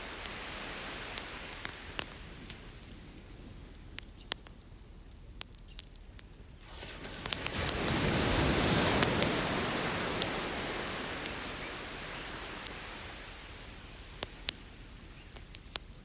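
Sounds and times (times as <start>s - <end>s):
bonfire crackling: 0.0s - 16.0s
ocean wave breaking on beach: 6.6s - 15.0s.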